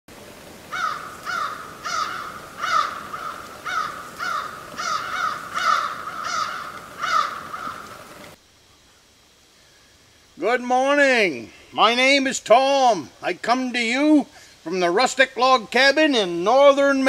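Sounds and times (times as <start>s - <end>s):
bird calling: 0.6s - 9.9s.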